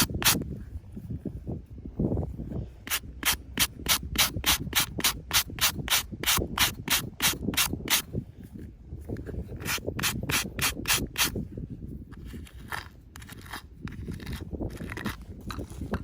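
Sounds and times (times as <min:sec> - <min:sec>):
rasping scraping strokes: 0:00.0 - 0:00.4, 0:02.6 - 0:08.1, 0:09.2 - 0:11.4, 0:12.1 - 0:16.0.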